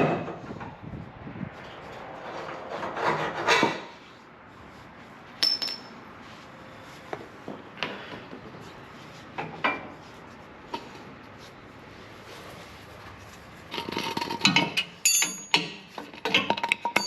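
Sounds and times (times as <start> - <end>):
metal tools clinking: 5.4 - 6.0, 14.3 - 17.0.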